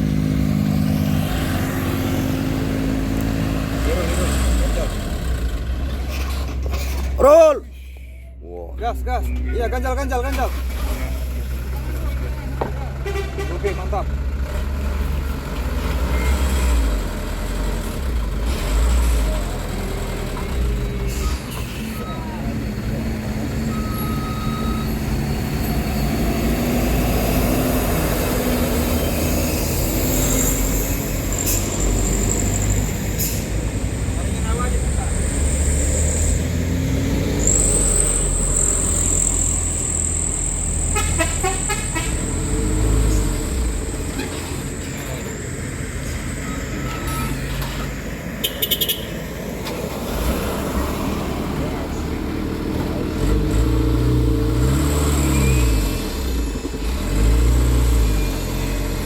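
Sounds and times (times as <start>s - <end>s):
diesel truck engine under load: 0.0s - 7.6s, 8.8s - 59.0s
high squeal: 28.9s - 33.4s, 37.2s - 45.4s.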